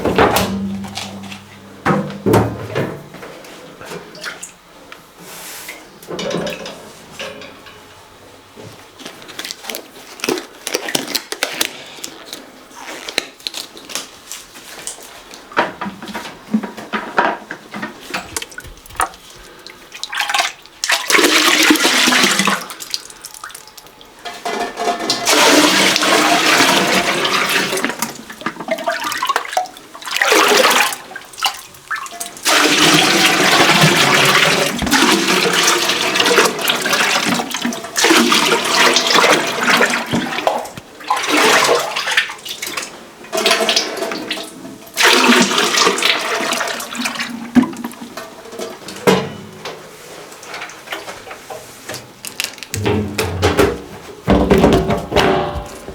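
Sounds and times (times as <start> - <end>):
water running and splashing: 18.2 - 24.1.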